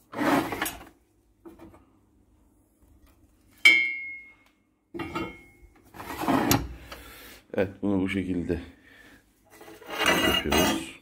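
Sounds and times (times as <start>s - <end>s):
metal scrape: 0.0s - 0.9s, 5.3s - 6.8s, 9.5s - 11.0s
ringing metallic clank: 5.0s - 5.6s.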